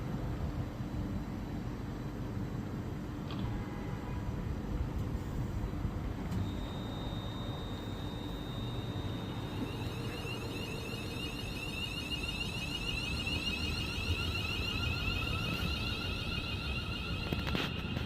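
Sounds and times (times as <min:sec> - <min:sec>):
low steady rumble: 0:04.3 - 0:18.0
electronic warning beeps: 0:05.6 - 0:18.0.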